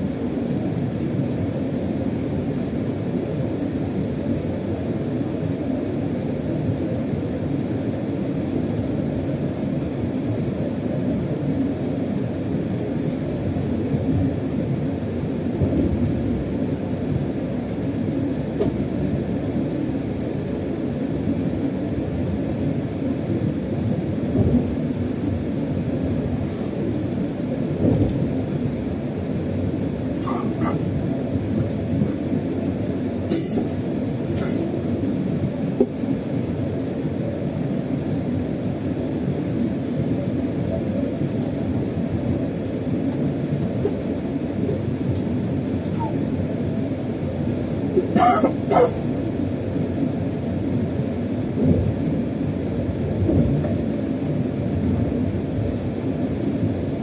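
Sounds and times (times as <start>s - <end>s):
locomotive rumble in cab: 24.2s - 36.6s, 39.9s - 49.3s.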